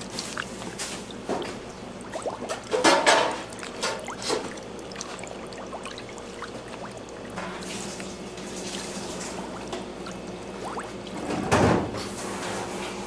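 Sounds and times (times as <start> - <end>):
liquid splashing and pouring: 0.0 - 12.3.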